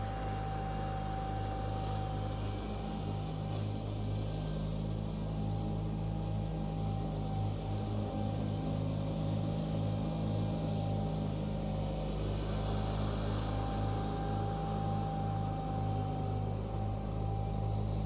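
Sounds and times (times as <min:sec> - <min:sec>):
steady thin whine: 0:00.0 - 0:06.1, 0:12.0 - 0:18.0
garden tractor engine running: 0:00.0 - 0:18.0.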